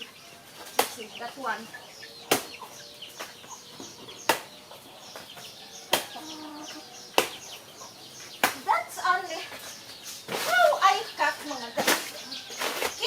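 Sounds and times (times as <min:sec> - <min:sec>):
birds chirping: 0:00.0 - 0:13.0
chickens clucking: 0:00.0 - 0:13.0
blade chopping tree trunk: 0:02.3 - 0:02.6, 0:04.2 - 0:04.6.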